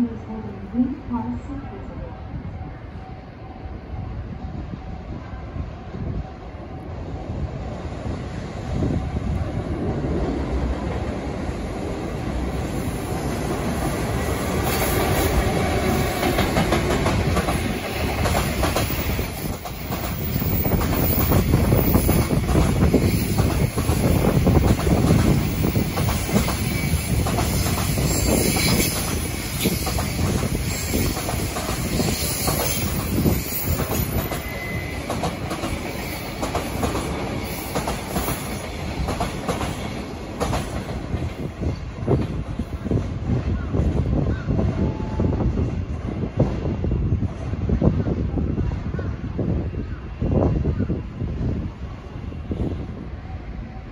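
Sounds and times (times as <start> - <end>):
freight train wheels clattering: 13.1 - 42.5.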